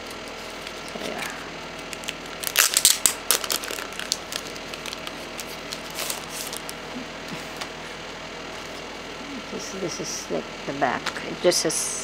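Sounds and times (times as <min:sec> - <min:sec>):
packaging crackling clicks: 0:00.0 - 0:06.8.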